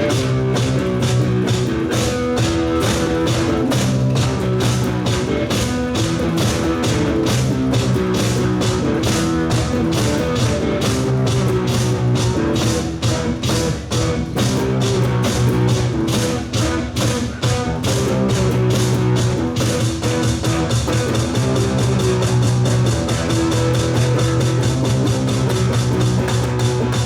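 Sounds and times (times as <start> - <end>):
bass guitar: 0.0 - 27.0
drum kit beat: 0.0 - 27.0
electric guitar: 0.0 - 27.0.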